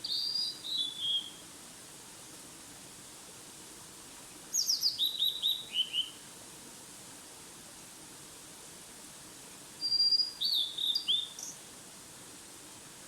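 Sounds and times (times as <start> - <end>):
songbird singing: 0.0 - 1.4, 4.5 - 6.2, 9.8 - 11.6.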